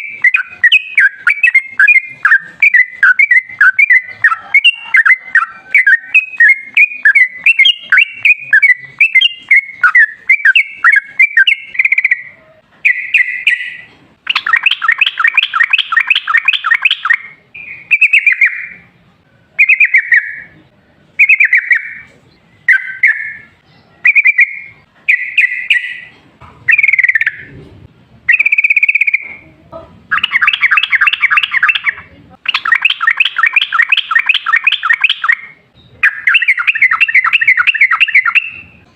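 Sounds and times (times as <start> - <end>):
bird singing bubbly chirps: 0.0 - 18.8, 26.7 - 27.5, 30.1 - 38.8.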